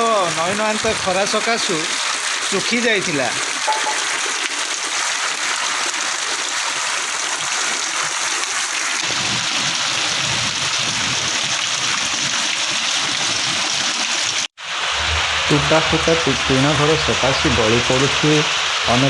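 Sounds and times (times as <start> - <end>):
heavy rain hissing: 0.0 - 5.9, 6.6 - 19.0
deep rumbling: 14.7 - 17.9.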